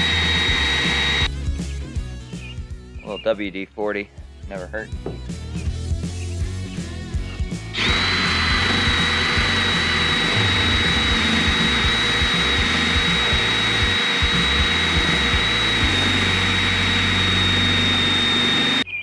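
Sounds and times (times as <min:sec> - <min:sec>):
power drill whining into steel: 0:00.0 - 0:01.3, 0:07.8 - 0:18.9.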